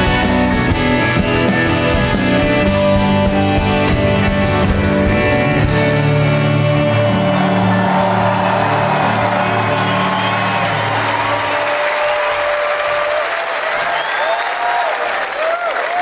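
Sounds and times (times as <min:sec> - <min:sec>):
guitars playing held chords: 0:00.0 - 0:12.5
drums: 0:00.0 - 0:14.6.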